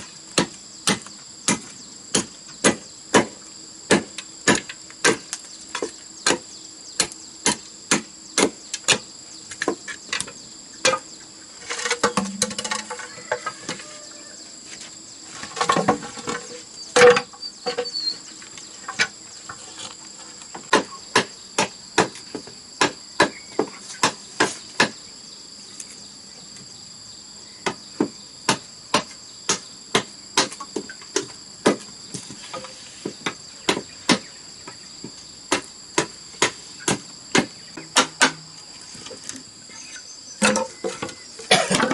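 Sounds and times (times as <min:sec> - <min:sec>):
high insect drone: 0:00.0 - 0:41.9
bamboo rattling: 0:09.7 - 0:13.9, 0:40.4 - 0:41.9
hand tool knocking bamboo: 0:35.5 - 0:38.4.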